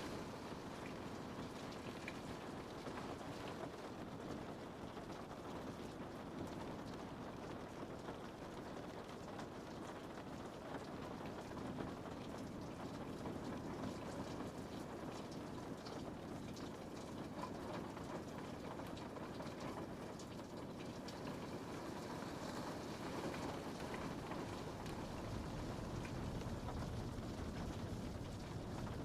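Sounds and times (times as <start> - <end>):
rain patter on window pane: 0.0 - 29.0
sharp raindrop ticks: 12.2 - 29.0.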